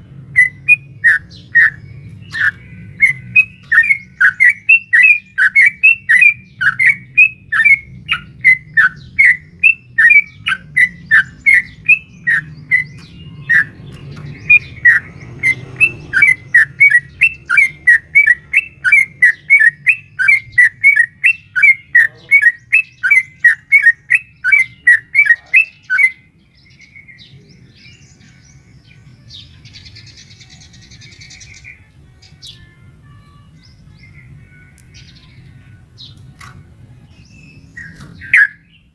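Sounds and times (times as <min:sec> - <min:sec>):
bulbul calling in rapid series: 0:00.3 - 0:12.8, 0:14.5 - 0:26.2, 0:37.8 - 0:38.6.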